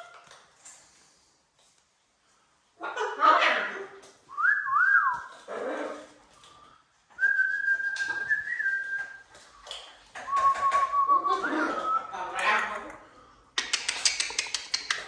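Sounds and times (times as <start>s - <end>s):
person whistling: 4.3s - 5.3s, 7.2s - 9.2s.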